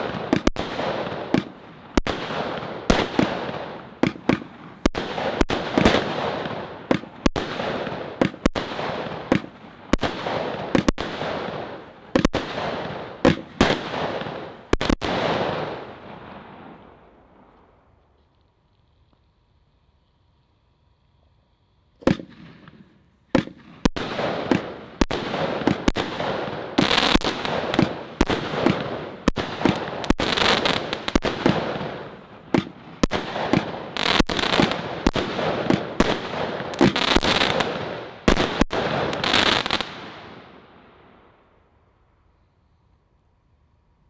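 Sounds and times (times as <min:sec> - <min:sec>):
firework launch pops: 0:00.0 - 0:00.7, 0:01.3 - 0:02.2, 0:04.0 - 0:06.2, 0:06.9 - 0:07.6, 0:09.3 - 0:11.1, 0:12.2 - 0:12.5, 0:13.2 - 0:13.9, 0:22.0 - 0:26.2, 0:32.5 - 0:40.0
firework bursts: 0:00.0 - 0:41.4.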